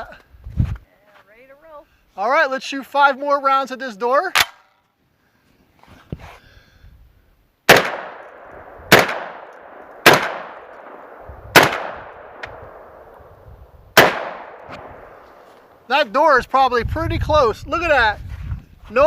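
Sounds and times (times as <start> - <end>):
shotgun blasts with echo: 7.7 - 15.4.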